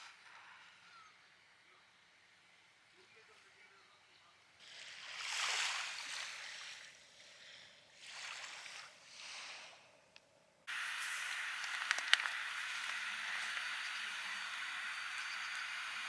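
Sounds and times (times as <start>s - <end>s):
sharp clicks: 10.7s - 16.0s
small waves washing onto beach: 10.7s - 16.0s
steady hiss: 10.7s - 16.0s.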